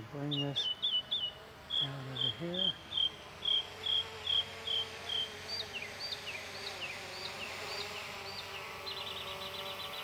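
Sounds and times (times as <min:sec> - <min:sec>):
faint steady hum: 0:00.0 - 0:10.0
bird singing whistled notes: 0:00.3 - 0:04.4.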